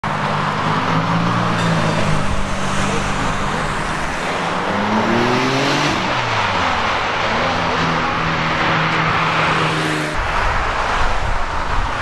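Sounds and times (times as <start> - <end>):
road and traffic noise: 0.0 - 12.0
car engine accelerating: 2.0 - 10.1.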